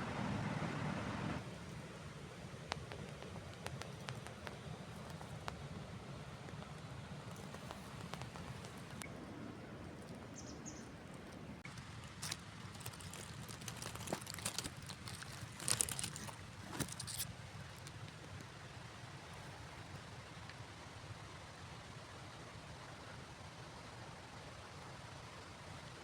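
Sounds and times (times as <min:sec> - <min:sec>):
crackling rustles: 0:02.6 - 0:20.1.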